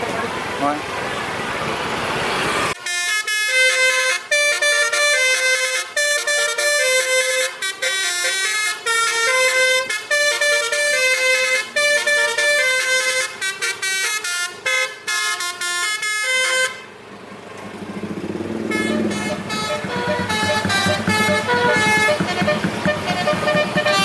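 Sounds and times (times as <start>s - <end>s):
air horn playing melody: 2.8s - 16.9s, 18.7s - 24.0s.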